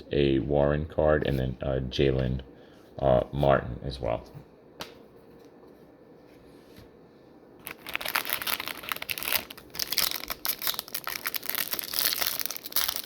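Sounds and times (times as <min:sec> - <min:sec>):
wrapper crinkling and tearing: 0:07.6 - 0:13.0.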